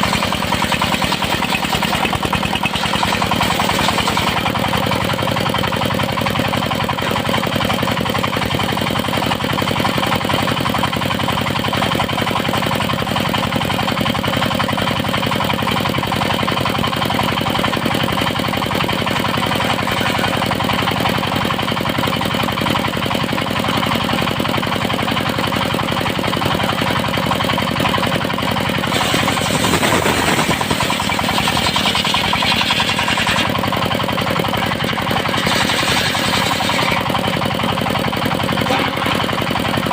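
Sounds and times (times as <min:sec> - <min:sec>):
circular sawmill running: 0:00.0 - 0:39.9
saw blade hissing through wood: 0:28.9 - 0:33.5, 0:35.3 - 0:36.9.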